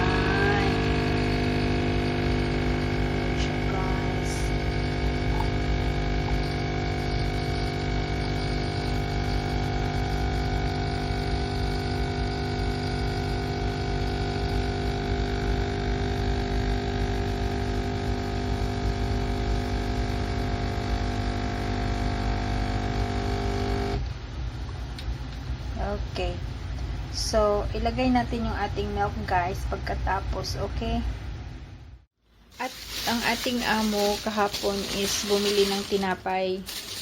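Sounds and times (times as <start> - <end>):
coffee machine pump humming: 0.0 - 24.1, 32.4 - 37.0.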